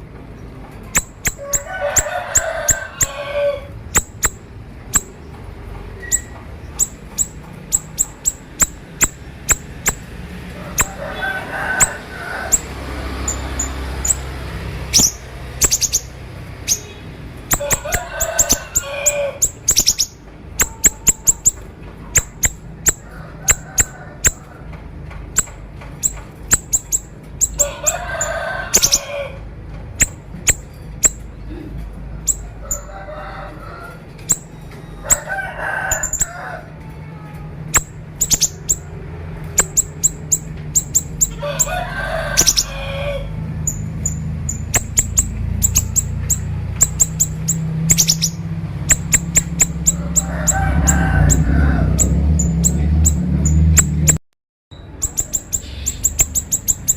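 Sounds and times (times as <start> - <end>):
songbird singing high chips: 0.9 - 1.7, 3.9 - 5.2, 6.0 - 10.1, 12.5 - 21.6, 25.4 - 27.6, 37.8 - 38.8, 39.6 - 41.4, 43.7 - 50.3, 54.8 - 56.9
lower bird warbling: 0.9 - 5.2, 6.0 - 24.4, 25.4 - 29.3, 35.9 - 36.7, 37.6 - 54.2, 54.8 - 56.9.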